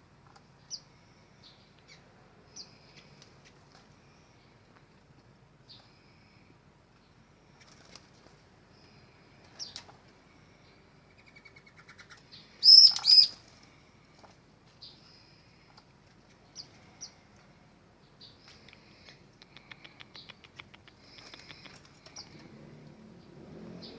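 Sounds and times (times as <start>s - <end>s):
small birds chirping: 0.2s - 23.9s
loud sharp bird chirps: 11.1s - 13.4s.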